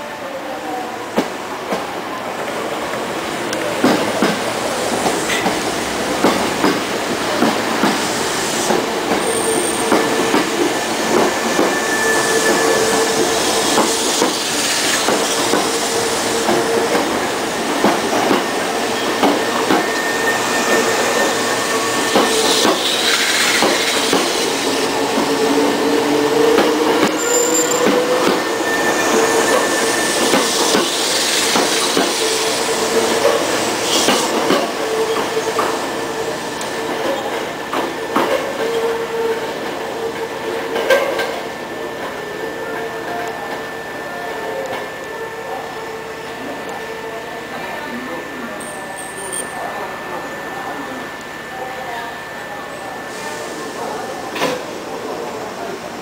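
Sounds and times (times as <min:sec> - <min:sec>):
steady train whine: 0:00.0 - 0:56.0
train wheels clattering: 0:03.7 - 0:25.4.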